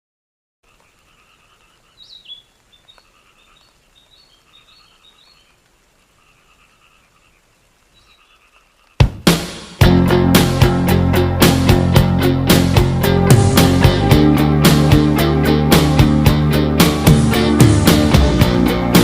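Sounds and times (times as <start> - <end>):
frogs calling: 0.6 - 9.1
sharp chirping calls: 0.7 - 5.6, 6.2 - 9.0
guitar rock music: 9.0 - 19.0.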